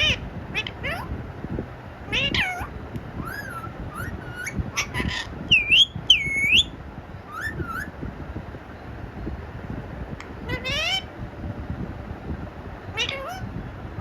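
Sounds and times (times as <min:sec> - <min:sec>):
parrot whistling: 0:02.1 - 0:07.9, 0:10.4 - 0:11.1, 0:12.9 - 0:13.5.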